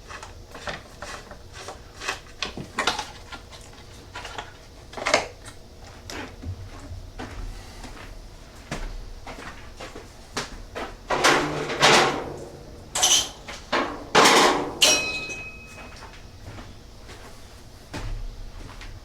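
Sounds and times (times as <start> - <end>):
clunks and clatter of tools: 11.1 - 16.1
sharp metallic clink: 14.8 - 16.0.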